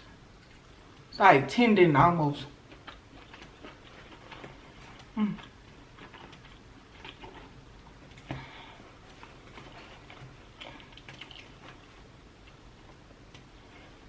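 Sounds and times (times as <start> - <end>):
lobster shell clicking and crackling: 10.6 - 11.7.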